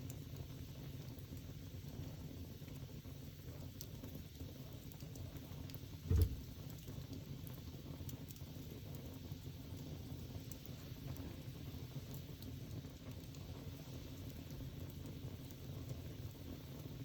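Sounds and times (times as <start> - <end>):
fire crackles and pops: 0.0 - 17.0
wood fire rumbling: 0.0 - 17.0
dull thump: 6.1 - 6.5.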